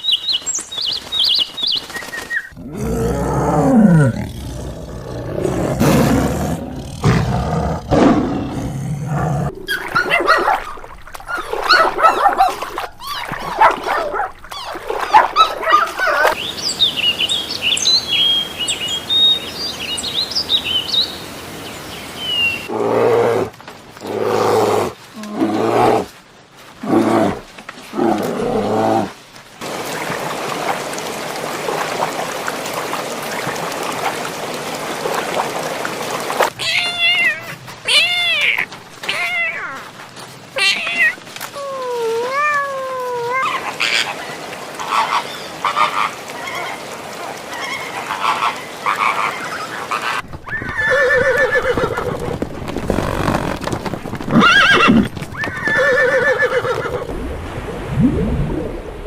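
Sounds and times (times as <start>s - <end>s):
animal calls: 9.4s - 16.4s.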